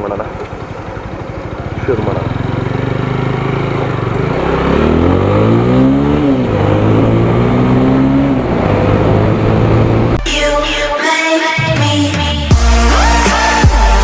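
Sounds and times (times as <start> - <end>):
motorcycle engine accelerating: 0.0 - 10.2.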